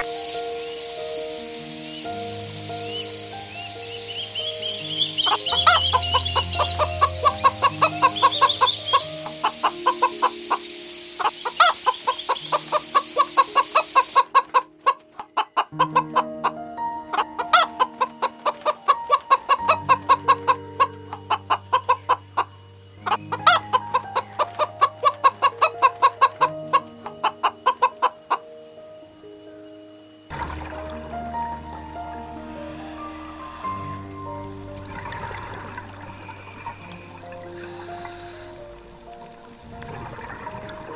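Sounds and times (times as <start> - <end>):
background music: 0.0 - 40.9
hen clucking: 5.1 - 16.6, 17.5 - 22.5, 23.1 - 28.4.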